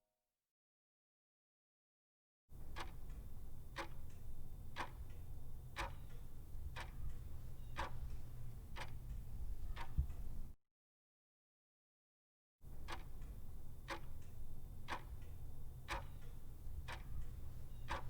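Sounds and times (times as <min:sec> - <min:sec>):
sharp ticks: 0:12.9 - 0:18.0.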